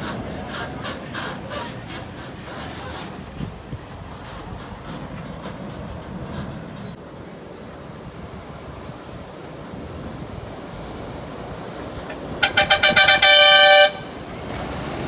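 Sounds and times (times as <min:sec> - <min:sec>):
highway truck traffic rumble: 0:00.0 - 0:15.0.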